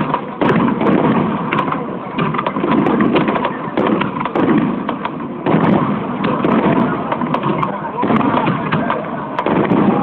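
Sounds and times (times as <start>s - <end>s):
firework crackling: 0.0s - 10.0s
firework shells booming: 0.0s - 10.0s
loud bang: 0.0s - 10.0s.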